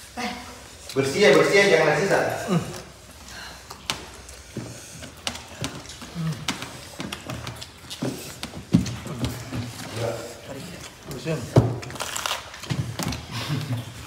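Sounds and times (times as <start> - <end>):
chewing and crunching beans: 2.6 - 14.0.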